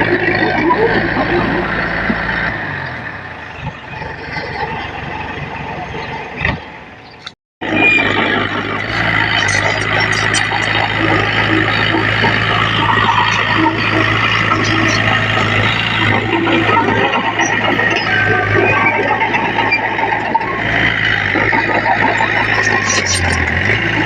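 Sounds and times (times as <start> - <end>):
heavy diesel machinery running: 0.0 - 24.0.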